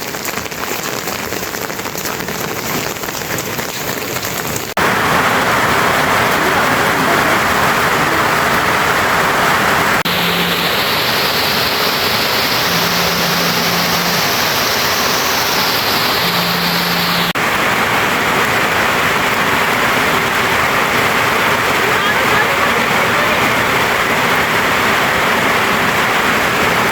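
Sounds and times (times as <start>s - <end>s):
water rushing: 0.0s - 26.9s.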